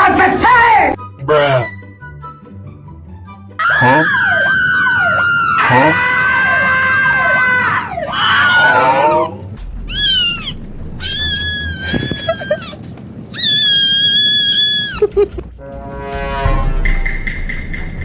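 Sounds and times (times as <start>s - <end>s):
cat meowing loudly: 3.6s - 9.2s, 9.9s - 15.1s.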